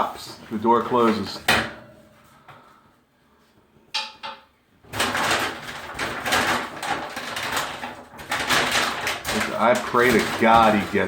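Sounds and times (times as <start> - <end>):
exhaust vent rattling and scraping: 4.8 - 11.0.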